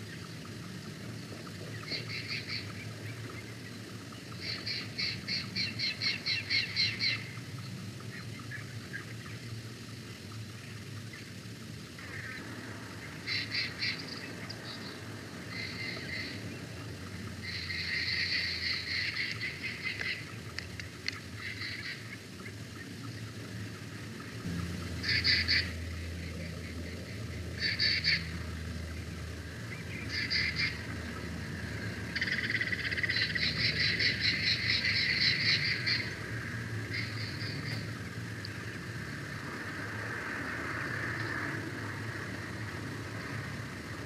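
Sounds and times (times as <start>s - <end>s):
low background noise: 0.0s - 44.0s
bird calling rapid high notes: 25.0s - 25.8s.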